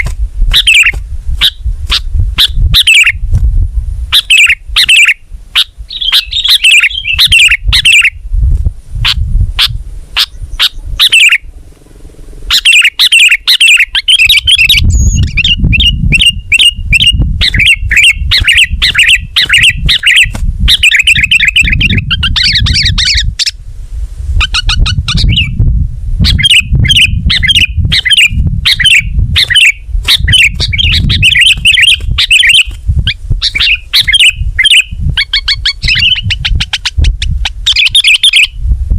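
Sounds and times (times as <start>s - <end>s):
heavy low rumble: 0.0s - 6.3s, 6.9s - 12.7s, 14.8s - 37.6s
bulbul singing in chattering chirps: 4.2s - 8.2s, 12.5s - 23.6s, 24.4s - 25.6s, 26.2s - 38.6s.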